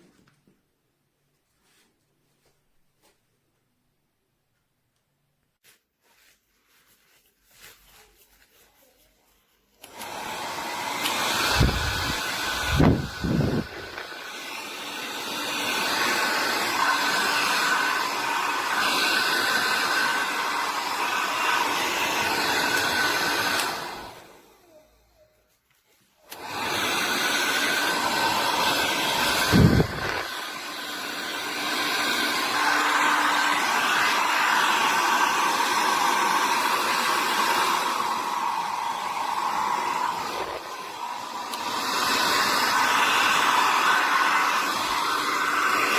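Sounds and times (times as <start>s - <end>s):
hair dryer running: 9.8s - 24.9s, 26.2s - 45.9s.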